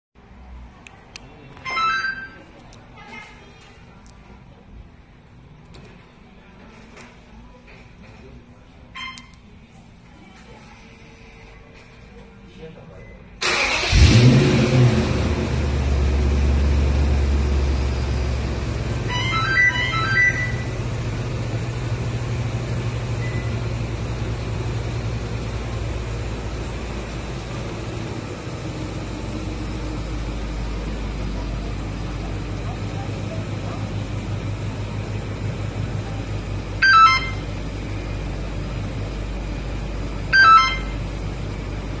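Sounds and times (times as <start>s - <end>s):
car engine idling: 13.4s - 42.0s
electronic melody of rising beeps: 19.1s - 20.7s, 36.8s - 37.5s, 40.3s - 41.0s
electronic chime: 36.8s - 37.5s, 40.4s - 41.0s.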